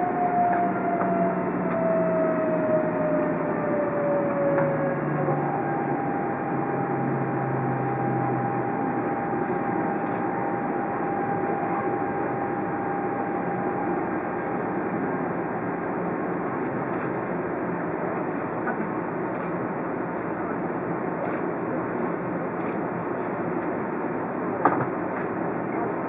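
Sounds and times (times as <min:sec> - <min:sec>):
low hum: 0:00.0 - 0:17.0
thin steady whine: 0:00.0 - 0:19.7
train rumble from inside: 0:00.0 - 0:26.0.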